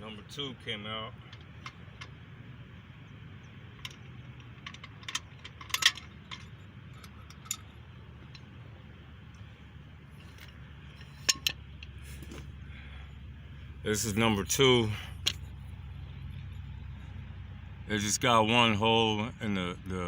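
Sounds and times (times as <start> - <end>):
faint low hum: 0.0 - 20.0
metal parts clinking: 3.7 - 8.5, 10.2 - 12.4.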